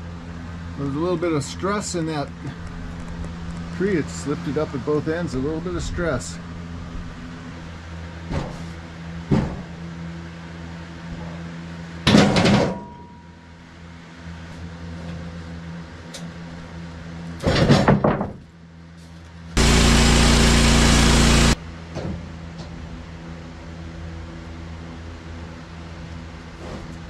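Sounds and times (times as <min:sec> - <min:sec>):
sawmill engine running: 0:19.6 - 0:21.6.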